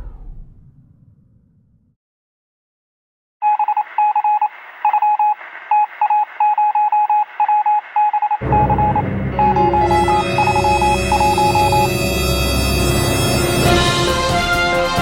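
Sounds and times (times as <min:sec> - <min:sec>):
loud deep rumble: 0:00.0 - 0:01.9, 0:08.4 - 0:14.4
electronic beeps: 0:03.4 - 0:12.8.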